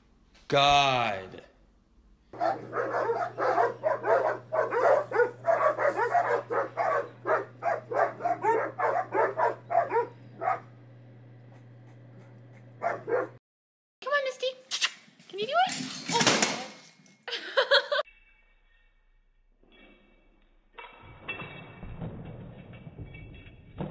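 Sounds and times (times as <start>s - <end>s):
dogs barking fiercely: 2.4s - 10.8s, 12.8s - 13.4s.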